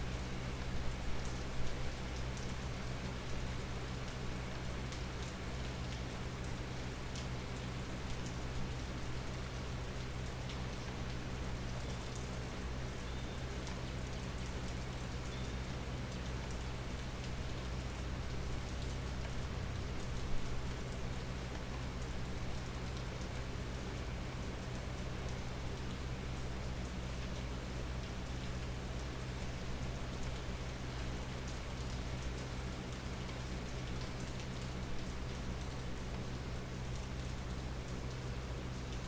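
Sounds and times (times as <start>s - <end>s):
steady rain: 0.0s - 39.0s.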